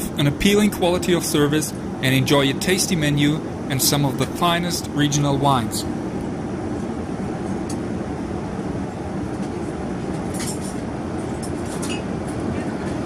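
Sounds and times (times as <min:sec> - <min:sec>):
airliner cabin noise: 0:00.0 - 0:13.0.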